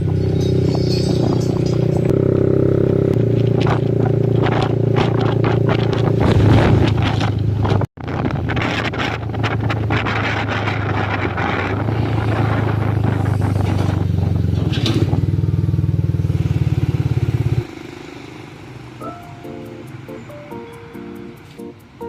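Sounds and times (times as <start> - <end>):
motorbike engine running: 0.0 - 20.3.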